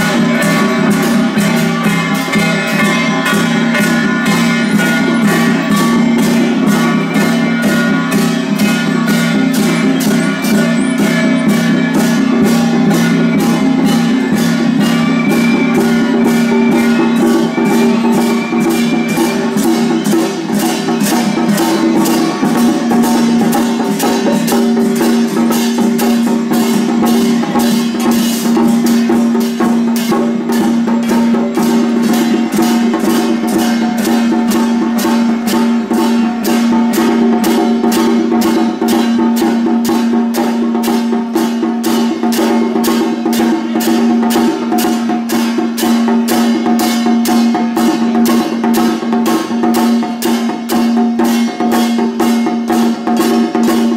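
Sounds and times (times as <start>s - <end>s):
ringing tones: 0.0s - 47.5s
drum struck in fast rhythm: 0.0s - 53.9s.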